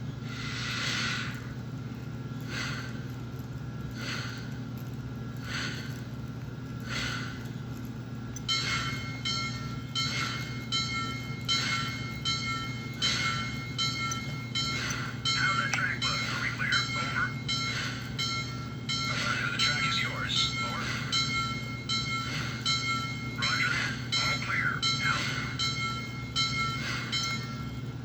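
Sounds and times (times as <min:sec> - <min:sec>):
model locomotive steam chuffs: 0:00.0 - 0:28.0
steady electrical hum: 0:00.0 - 0:28.0
locomotive bell ringing: 0:08.3 - 0:28.0.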